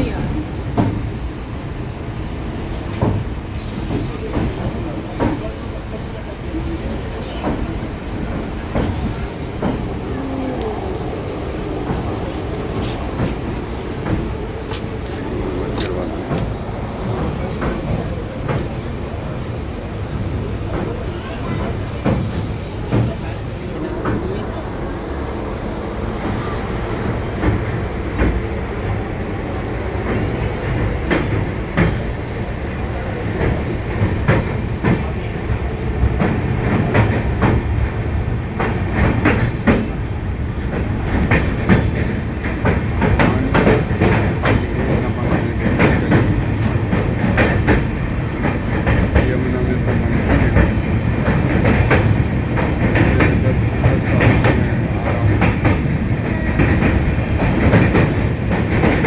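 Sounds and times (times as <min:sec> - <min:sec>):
train rumbling over steel bridge: 0:00.0 - 0:59.0
wheels clacking over rails: 0:02.9 - 0:59.0.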